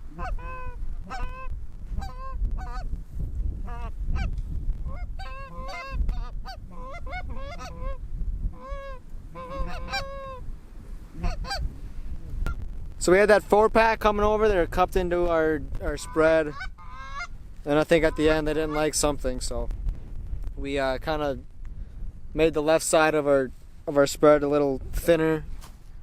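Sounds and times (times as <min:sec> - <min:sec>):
geese honking and clucking: 0:00.0 - 0:02.9, 0:03.6 - 0:10.5, 0:11.1 - 0:11.7, 0:15.9 - 0:19.2.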